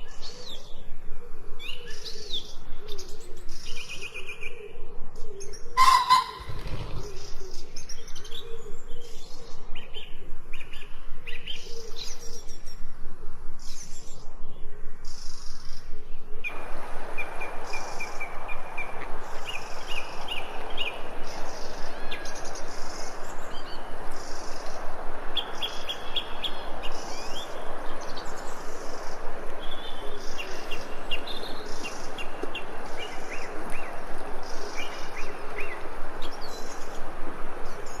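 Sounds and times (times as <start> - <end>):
songbirds chirping: 0.0 - 38.0
steady background hiss: 0.0 - 38.0
high bird calls: 5.8 - 7.4.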